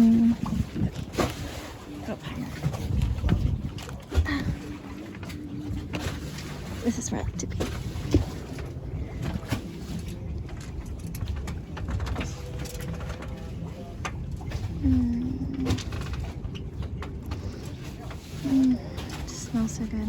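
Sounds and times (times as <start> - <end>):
wind buffeting microphone: 0.0 - 6.0
water rushing under boat: 0.0 - 20.0.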